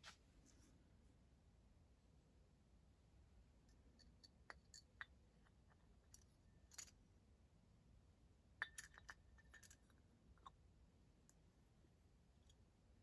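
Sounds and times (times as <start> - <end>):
small parts clicking and clinking: 4.0 - 7.0, 8.6 - 10.6.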